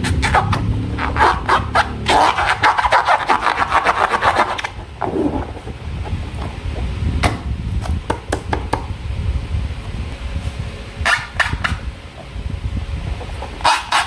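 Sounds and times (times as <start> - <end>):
slime rubbing by hand: 0.0 - 5.8.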